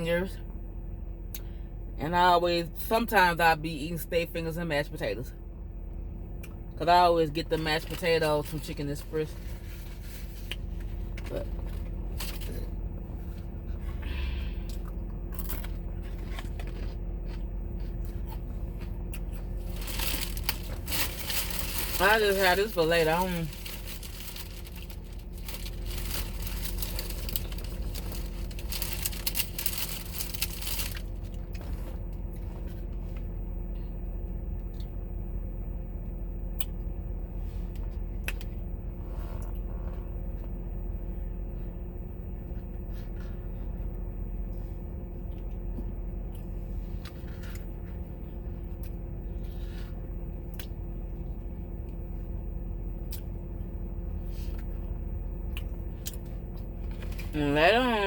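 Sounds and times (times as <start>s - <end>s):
steady low hum: 0.0s - 58.0s
food packaging crinkling: 15.3s - 32.5s.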